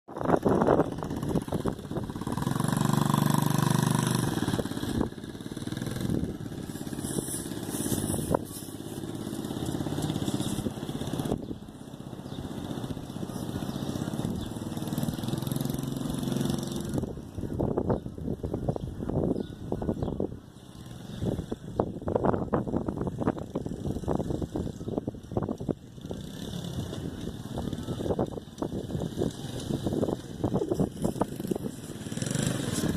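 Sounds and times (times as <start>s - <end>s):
dirt bike engine running: 0.1s - 17.6s, 20.8s - 32.9s.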